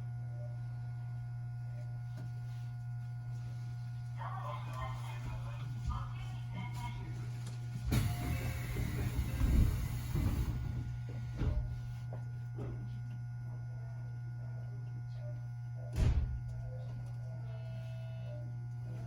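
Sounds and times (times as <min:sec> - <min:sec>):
train carriage hum: 0:00.0 - 0:14.6.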